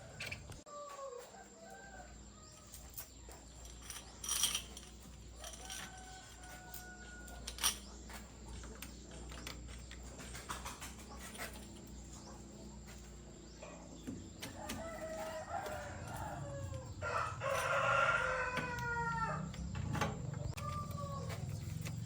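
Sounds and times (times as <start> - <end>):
rooster crowing: 5.4 - 7.6, 14.6 - 19.7, 20.5 - 21.6.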